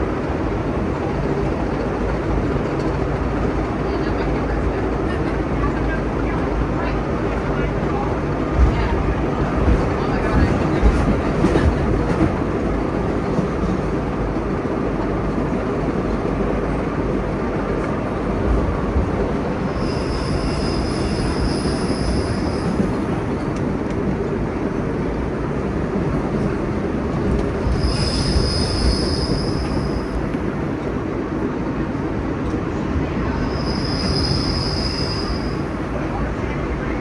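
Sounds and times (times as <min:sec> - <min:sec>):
train wheels rumbling on rails: 0:00.0 - 0:37.0
high-pitched wheel squeal: 0:19.8 - 0:22.8, 0:27.7 - 0:30.2, 0:33.4 - 0:35.6.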